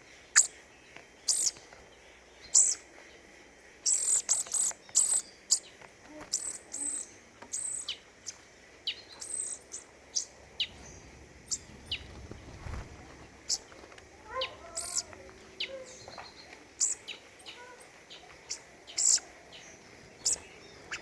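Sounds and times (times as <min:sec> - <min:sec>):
small songbirds calling: 0:00.0 - 0:21.0.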